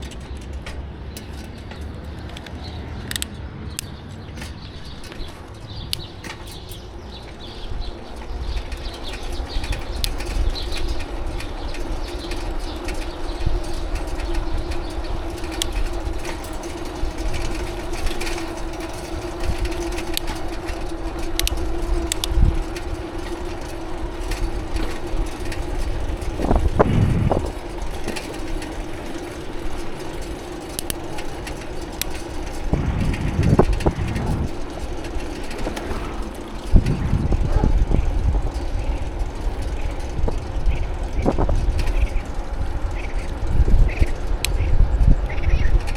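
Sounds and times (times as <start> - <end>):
wind and road rumble: 0.0 - 45.9
steady hum: 26.4 - 27.7, 32.5 - 39.9.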